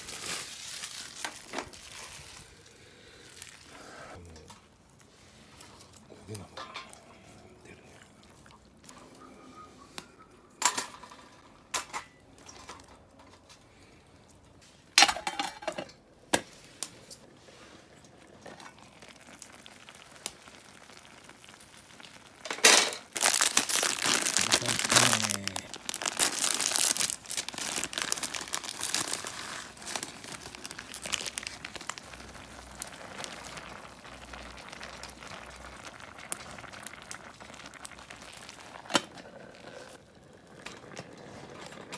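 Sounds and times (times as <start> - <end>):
plastic packaging crinkling: 0.0 - 3.7, 19.1 - 38.8.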